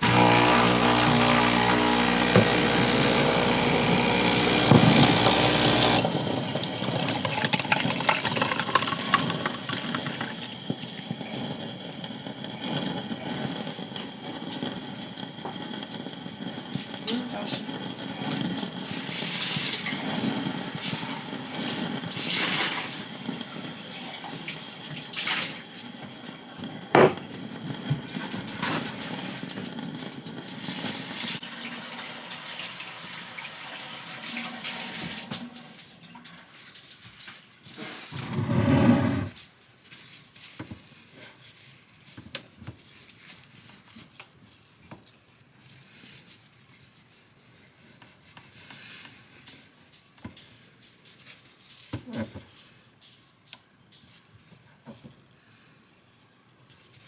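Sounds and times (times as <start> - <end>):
tap water running into sink: 0.0 - 10.9
items knocking and clinking: 0.1 - 6.1.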